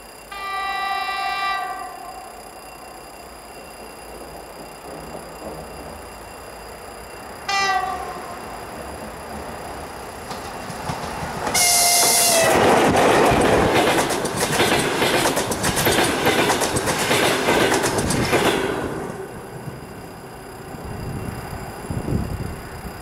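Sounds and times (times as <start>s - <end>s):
train rumble: 0.0s - 23.0s
locomotive horn blasts: 0.3s - 2.3s, 7.5s - 8.3s, 11.6s - 12.6s
wheels clattering over rails: 7.9s - 19.2s.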